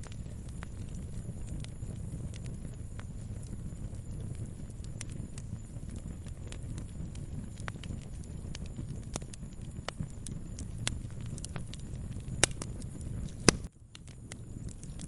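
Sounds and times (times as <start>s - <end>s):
fire popping: 0.0s - 15.0s
wood fire crackling: 0.0s - 15.0s.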